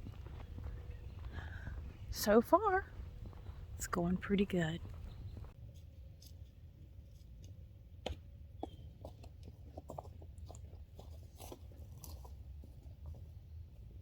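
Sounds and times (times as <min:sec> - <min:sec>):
footsteps crunching on trail: 0:00.0 - 0:05.6, 0:08.6 - 0:13.4.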